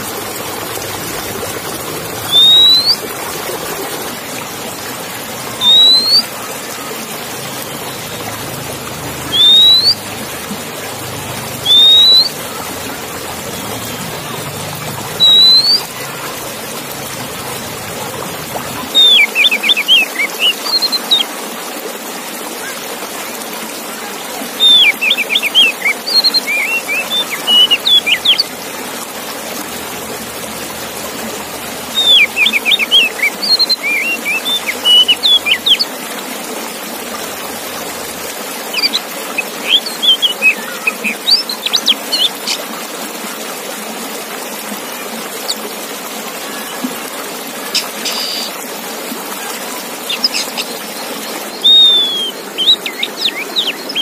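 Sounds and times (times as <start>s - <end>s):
bird singing whistles and chirps: 2.2s - 3.0s, 5.6s - 6.3s, 9.3s - 10.0s, 11.6s - 12.4s, 15.2s - 15.9s, 18.9s - 21.3s, 24.6s - 28.5s, 31.9s - 35.8s, 39.6s - 42.3s, 51.5s - 54.0s.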